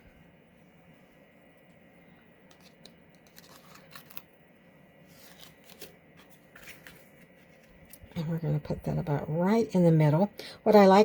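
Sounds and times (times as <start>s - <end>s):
paper backing crinkling and peeling: 2.5s - 4.3s, 5.1s - 8.2s.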